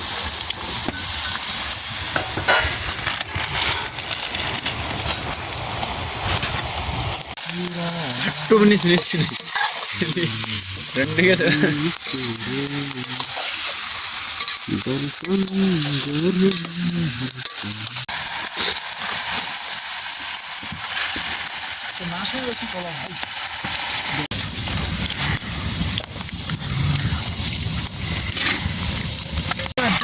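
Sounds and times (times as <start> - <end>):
food sizzling in a pan: 0.0 - 30.0
faint voice: 7.4 - 9.1, 10.2 - 13.2.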